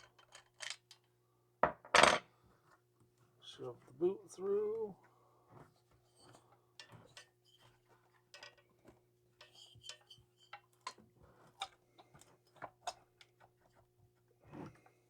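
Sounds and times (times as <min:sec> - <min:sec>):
tools and metal parts clicking: 0:00.0 - 0:01.0.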